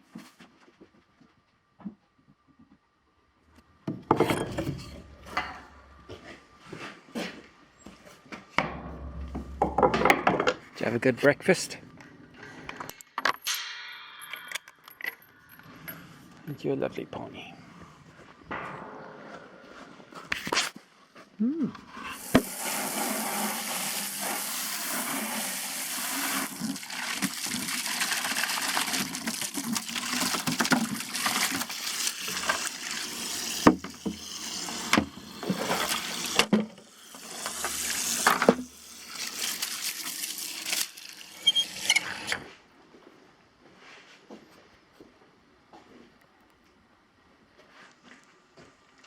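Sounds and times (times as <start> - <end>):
water running into container: 22.0 - 42.3.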